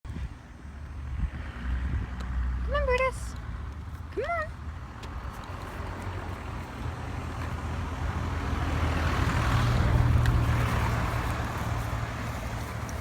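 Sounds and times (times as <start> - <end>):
vehicle driving past: 5.6 - 13.0.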